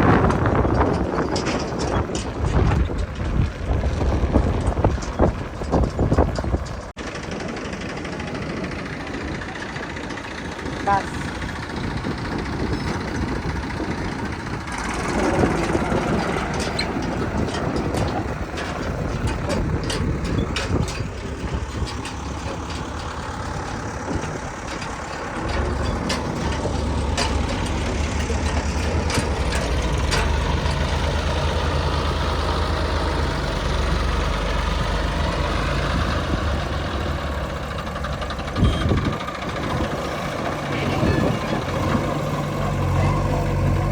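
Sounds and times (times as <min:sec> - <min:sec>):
sharp clicks and knocks: 0:00.0 - 0:07.0, 0:12.5 - 0:43.8
heavy machinery engine drone: 0:00.0 - 0:43.9.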